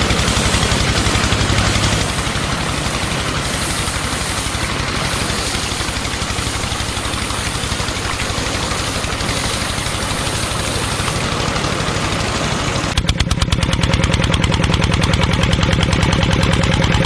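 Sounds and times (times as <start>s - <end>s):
small motor running: 0.0s - 13.2s.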